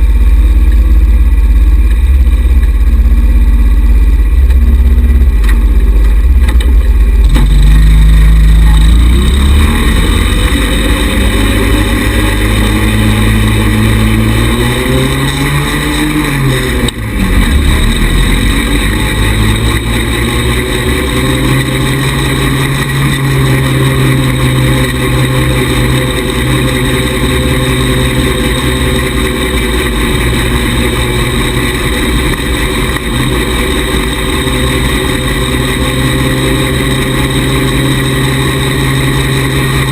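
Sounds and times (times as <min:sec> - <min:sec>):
low rumble: 0:00.0 - 0:39.9
small buggy engine running: 0:00.0 - 0:39.9.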